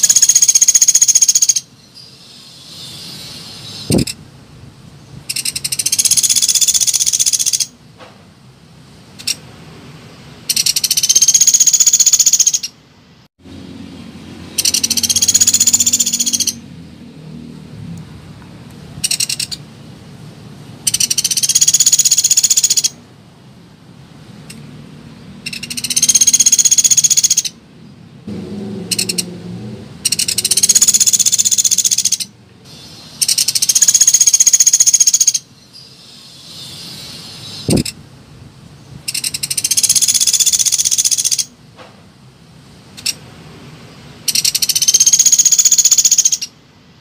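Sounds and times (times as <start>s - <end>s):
woodpecker high rapid trill: 0.0s - 1.7s, 5.3s - 7.7s, 10.5s - 12.7s, 14.5s - 16.6s, 20.9s - 23.0s, 25.4s - 27.6s, 28.8s - 29.3s, 30.0s - 35.5s, 39.1s - 41.5s, 44.3s - 46.5s.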